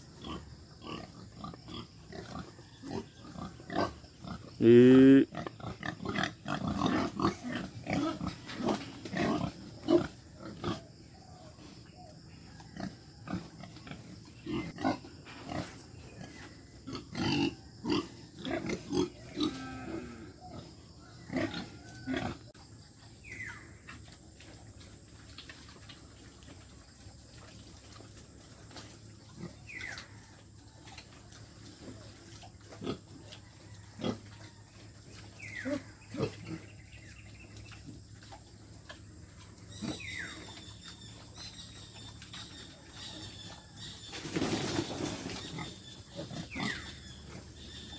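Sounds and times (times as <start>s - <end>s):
pigs grunting: 0.0s - 22.6s, 24.0s - 47.9s
pig squeals: 39.7s - 47.9s.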